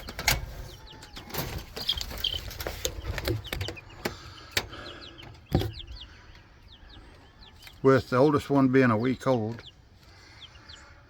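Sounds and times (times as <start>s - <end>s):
baby chicks peeping: 0.0s - 11.0s.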